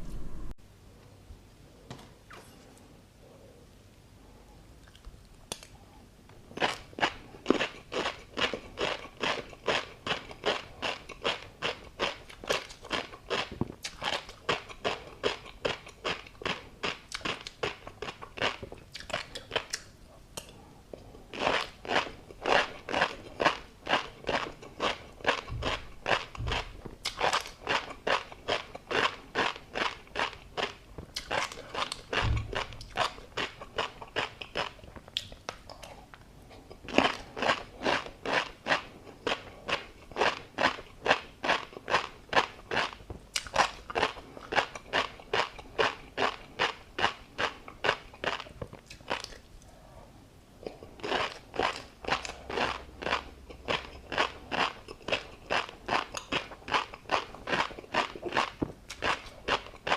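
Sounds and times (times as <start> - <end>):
person chewing crunchy food: 4.8 - 49.8, 50.6 - 59.9.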